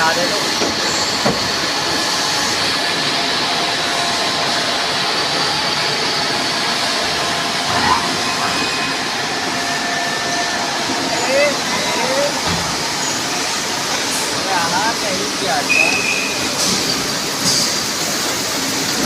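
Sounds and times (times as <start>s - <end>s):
machine whining tones: 5.0s - 14.3s.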